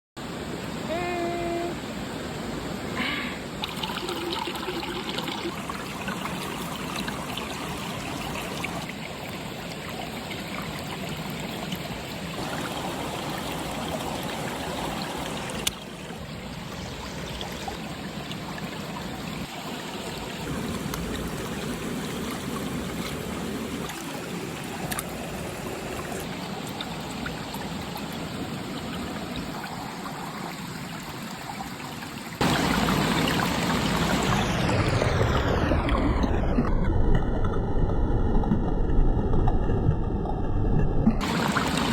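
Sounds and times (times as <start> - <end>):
water trickling: 3.5 - 35.4, 41.2 - 41.9.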